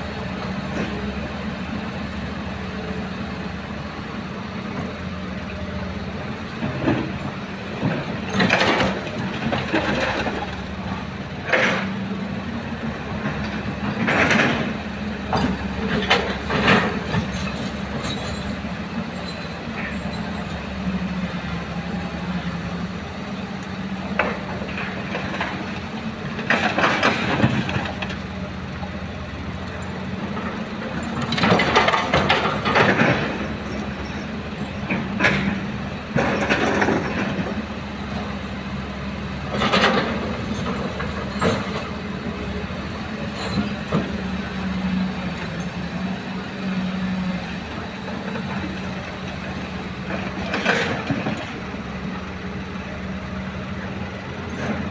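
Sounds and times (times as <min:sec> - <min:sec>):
excavator diesel engine humming: 0:00.0 - 0:54.9
soil and rock clattering: 0:29.6 - 0:38.4.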